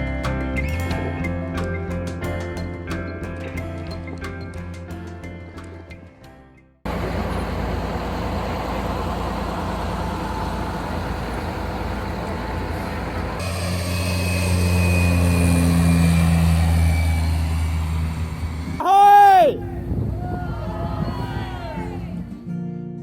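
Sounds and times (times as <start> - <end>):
boat engine running: 6.9 - 18.8
rushing wind: 6.9 - 22.3.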